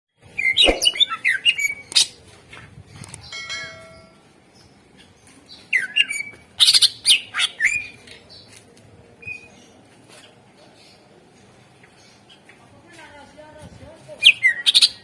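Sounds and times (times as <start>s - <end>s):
bird singing harsh chattering notes: 0.3s - 2.2s, 3.2s - 8.5s, 14.2s - 15.0s.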